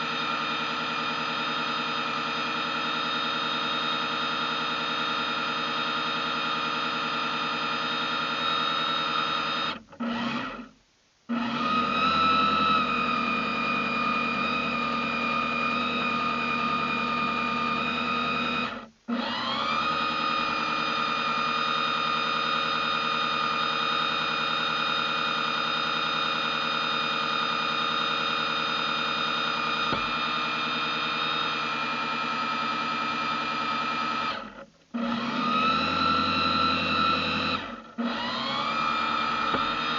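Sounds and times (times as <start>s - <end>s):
model boat motor whining: 11.3s - 39.9s.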